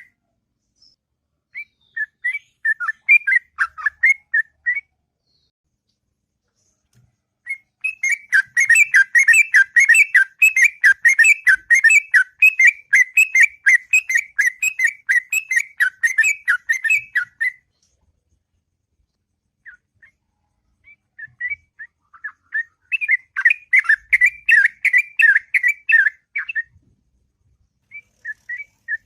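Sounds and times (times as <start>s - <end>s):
bird singing rapid whistled notes: 0.8s - 5.5s, 7.5s - 17.7s, 20.8s - 26.8s, 27.8s - 29.0s.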